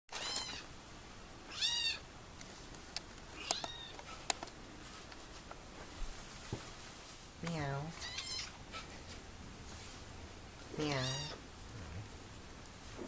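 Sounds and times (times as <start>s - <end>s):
kitten meowing: 1.5s - 2.0s, 10.8s - 11.4s.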